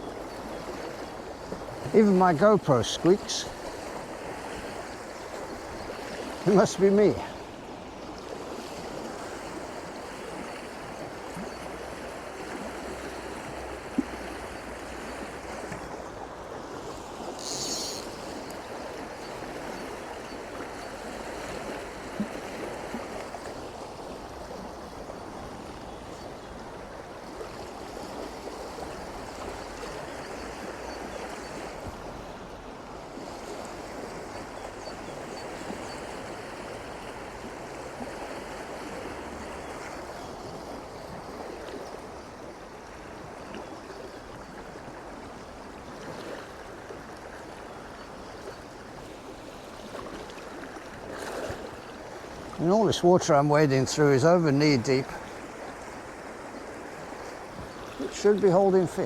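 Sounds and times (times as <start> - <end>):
stream rushing over rocks: 0.0 - 13.9, 48.9 - 59.0.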